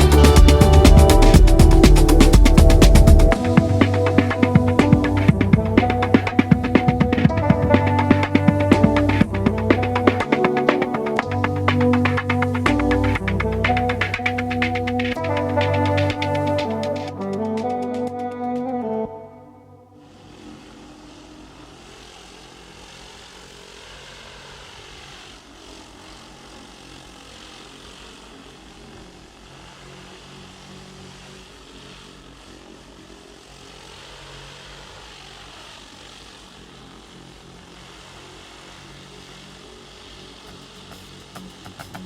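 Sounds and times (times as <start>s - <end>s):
continuous hiss: 0.0s - 19.0s, 20.0s - 42.0s
engine drone: 0.0s - 42.0s.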